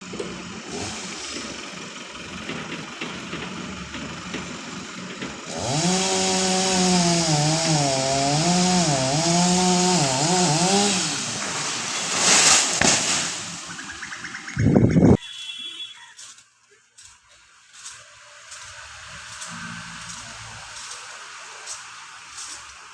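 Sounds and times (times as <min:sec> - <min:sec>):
chainsaw revving: 0:00.0 - 0:02.5, 0:03.3 - 0:13.8.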